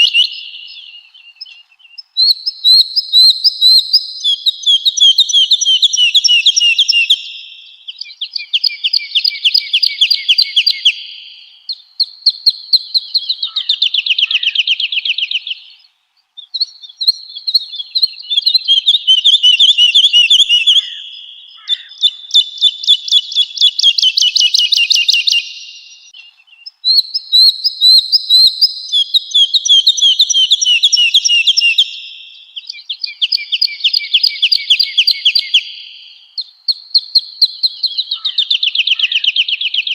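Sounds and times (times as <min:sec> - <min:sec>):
bird singing fluting notes: 0:18.2 - 0:26.4.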